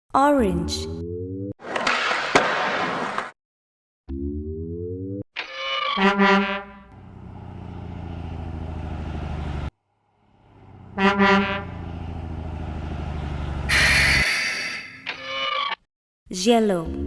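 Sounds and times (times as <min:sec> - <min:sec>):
truck horn blast: 0:06.0 - 0:07.1, 0:10.4 - 0:12.3, 0:13.4 - 0:14.5
truck engine rumble: 0:06.8 - 0:14.3
loud hiss: 0:13.7 - 0:14.8.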